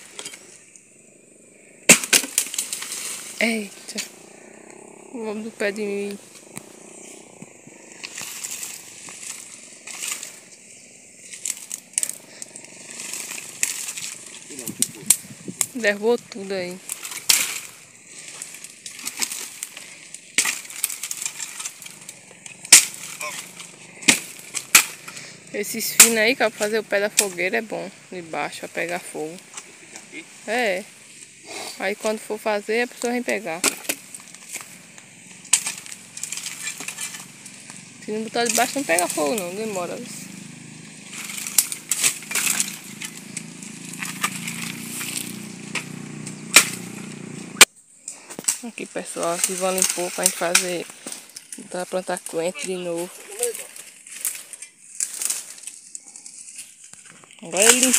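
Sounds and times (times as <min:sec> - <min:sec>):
rustling: 0:00.0 - 0:57.9
firewood knocking and cracking: 0:01.8 - 0:04.8, 0:06.0 - 0:10.6, 0:11.2 - 0:25.2, 0:32.9 - 0:47.7.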